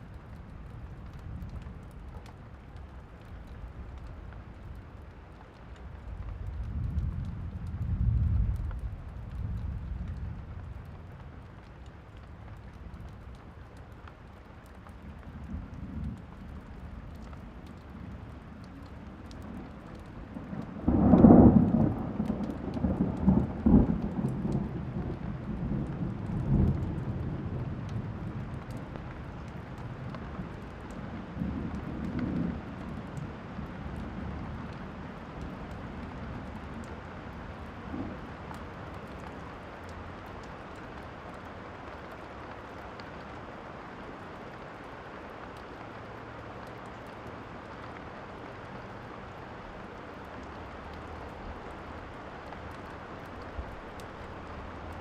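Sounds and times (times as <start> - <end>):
steady rain: 0.0 - 55.0
rolling thunder: 20.4 - 28.6.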